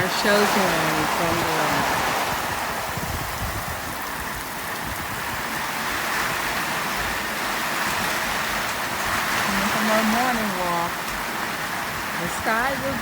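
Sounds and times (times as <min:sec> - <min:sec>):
rain on a metal roof: 0:00.0 - 0:13.0.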